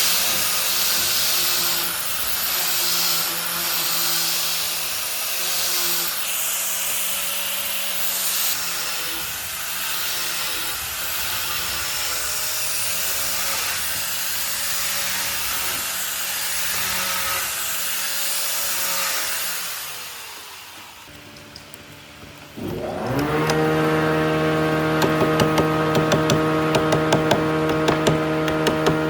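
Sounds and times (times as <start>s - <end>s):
power tool on wood: 0.0s - 29.0s.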